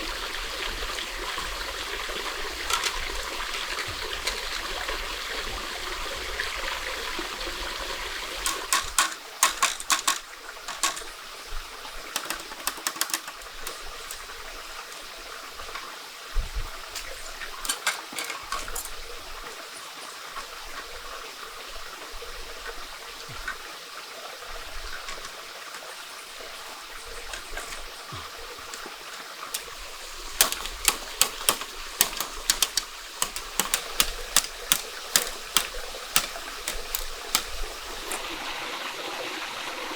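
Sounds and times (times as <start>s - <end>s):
stream water running: 0.0s - 39.9s
rapid sharp clicks: 8.4s - 11.1s, 12.0s - 14.4s, 29.5s - 38.2s.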